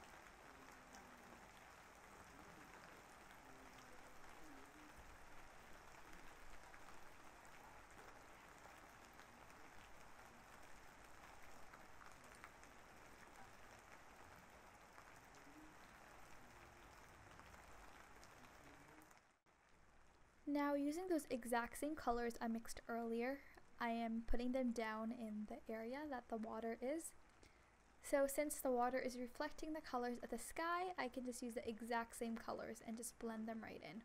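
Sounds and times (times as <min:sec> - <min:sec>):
raindrop ticks: 0:00.0 - 0:20.4
faint steady rain: 0:00.0 - 0:34.0.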